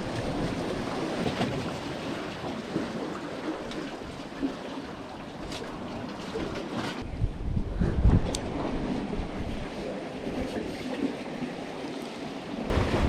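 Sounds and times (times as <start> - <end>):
sea water washing: 0.0 - 7.0, 8.0 - 13.0
wind on microphone: 7.0 - 10.8.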